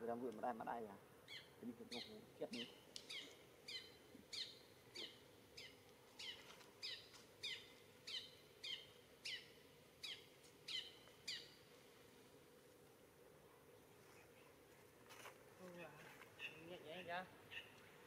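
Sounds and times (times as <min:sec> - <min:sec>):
faint steady hum: 0:00.0 - 0:18.0
bird calling: 0:01.2 - 0:11.6, 0:16.3 - 0:18.0.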